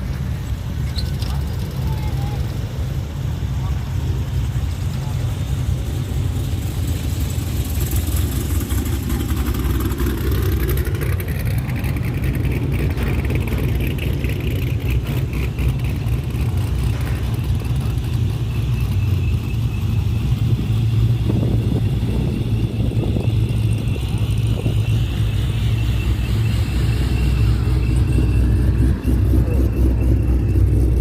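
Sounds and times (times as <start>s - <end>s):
car engine running: 0.0s - 31.0s.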